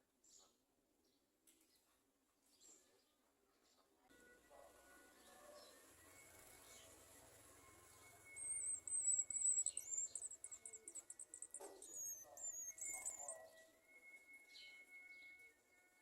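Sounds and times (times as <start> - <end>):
bird chirping and trilling: 5.6 - 15.5.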